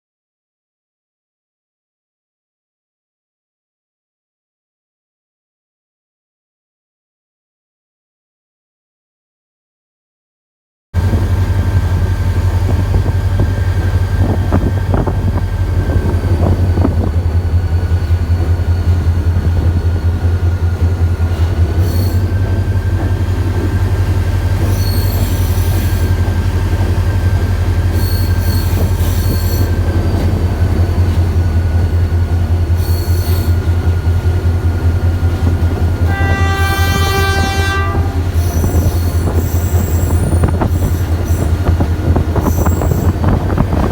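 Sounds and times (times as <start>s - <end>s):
train rumble: 11.0s - 43.9s
train wheel squeal: 11.2s - 34.1s, 38.2s - 43.9s
locomotive horn: 36.0s - 41.5s.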